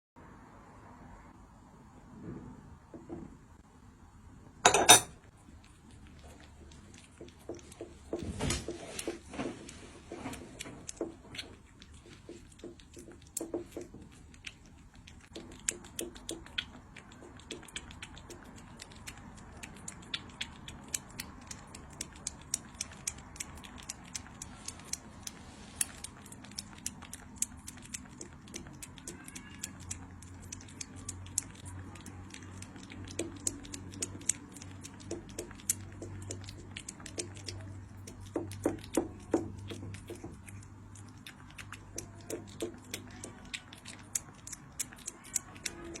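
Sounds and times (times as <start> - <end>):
cat chewing and licking: 5.2 - 46.0.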